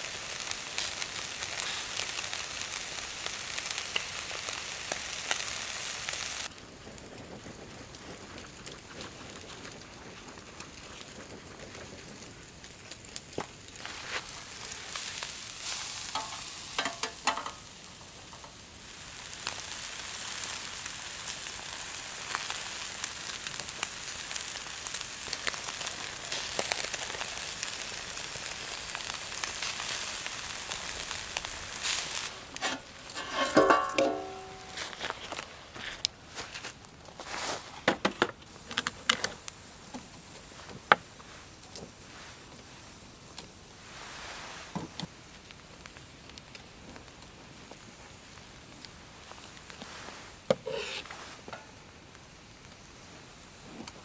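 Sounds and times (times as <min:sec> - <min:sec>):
food sizzling in a pan: 0:00.0 - 0:06.5, 0:13.7 - 0:35.2, 0:49.3 - 0:51.9
pan or utensil clatter: 0:16.1 - 0:17.7, 0:32.6 - 0:35.0, 0:50.6 - 0:51.7.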